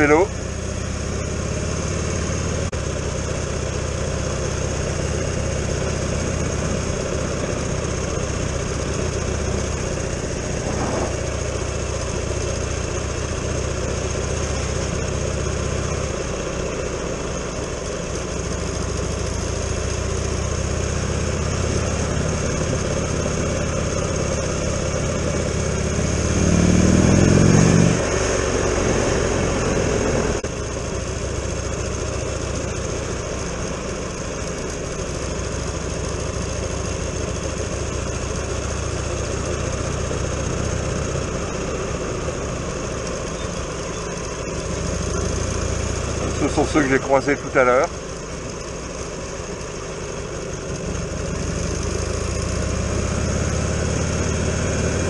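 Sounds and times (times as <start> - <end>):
motorcycle engine running: 0.0 - 55.0
wind noise: 10.5 - 11.8.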